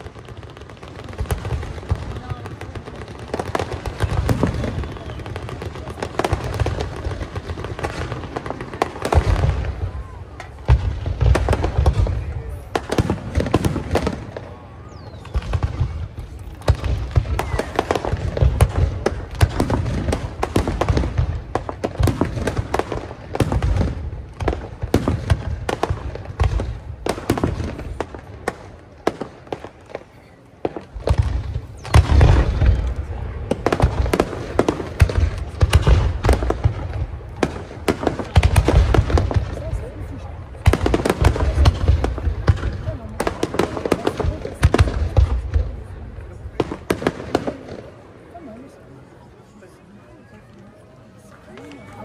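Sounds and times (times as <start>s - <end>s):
deep fireworks booms: 0.0s - 48.1s
fireworks bangs and crackling: 0.0s - 52.0s.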